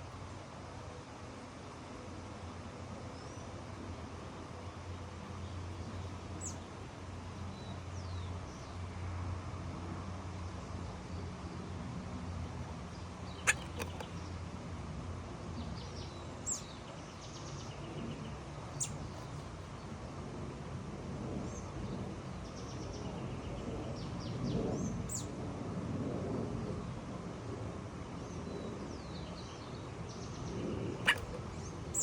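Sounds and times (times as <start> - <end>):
small birds chirping: 13.0 - 14.4, 15.7 - 20.0, 28.6 - 32.0.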